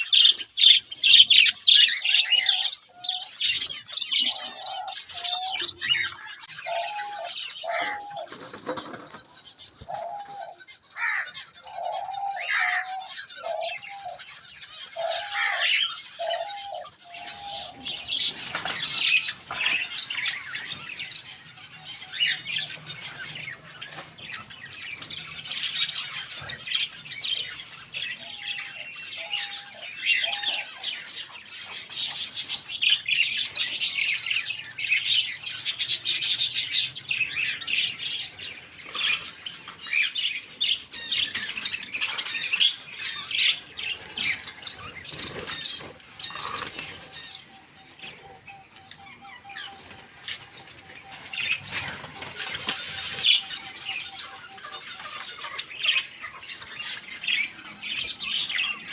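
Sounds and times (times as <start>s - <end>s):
birds chirping and squawking: 0.0s - 58.9s
wings fluttering: 17.6s - 27.6s, 43.5s - 47.3s, 49.8s - 53.9s.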